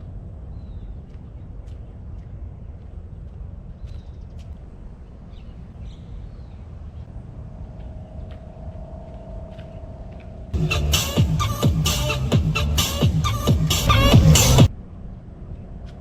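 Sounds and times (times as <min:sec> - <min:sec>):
steady low rumble: 0:00.0 - 0:16.0
steady hum: 0:07.1 - 0:14.8.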